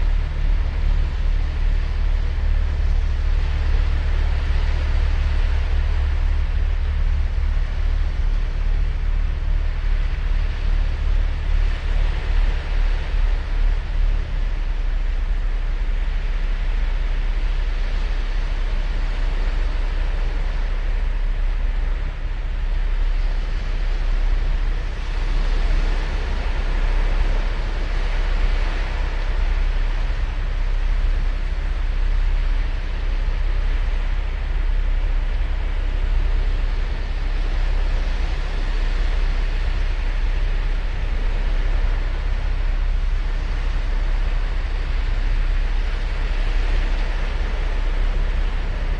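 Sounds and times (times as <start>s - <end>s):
wind rumble on microphone: 0.0s - 48.9s
ocean waves breaking on beach: 35.4s - 48.9s.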